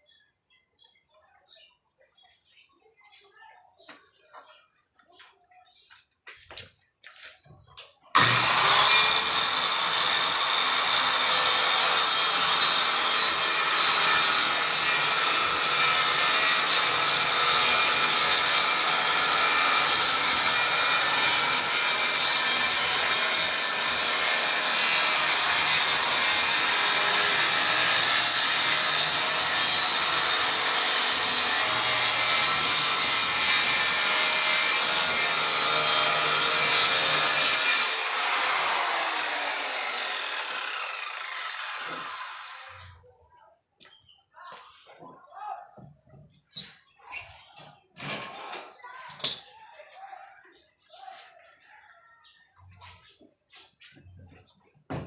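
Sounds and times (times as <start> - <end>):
circular saw cutting plywood: 8.2 - 43.0.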